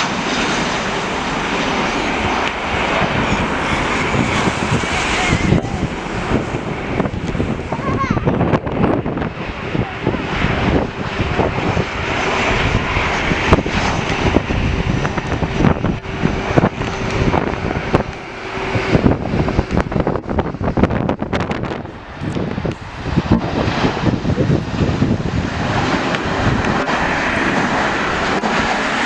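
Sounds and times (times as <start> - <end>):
jet airliner engines roaring: 0.0 - 29.0
wind buffeting microphone: 0.0 - 29.0.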